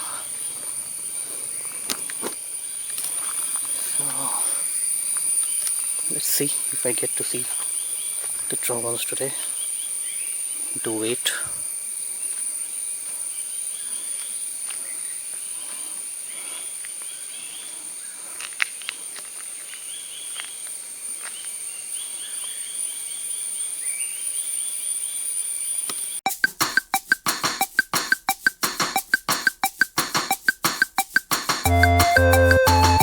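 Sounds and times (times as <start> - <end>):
high-pitched insect drone: 3.2 - 6.9
percussive music: 26.3 - 33.0.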